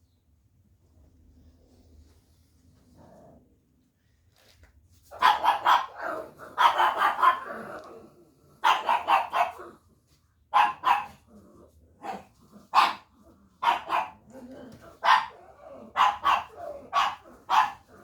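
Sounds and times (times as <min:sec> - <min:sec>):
dog barking: 0:05.1 - 0:07.6, 0:08.6 - 0:09.8, 0:10.5 - 0:11.2, 0:12.0 - 0:14.3, 0:14.9 - 0:18.0.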